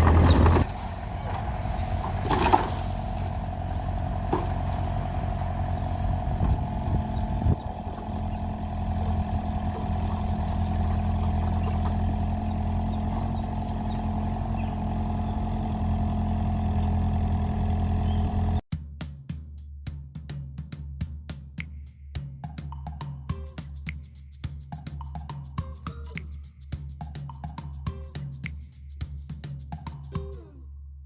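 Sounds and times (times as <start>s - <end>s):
excavator diesel engine running: 0.0s - 18.6s.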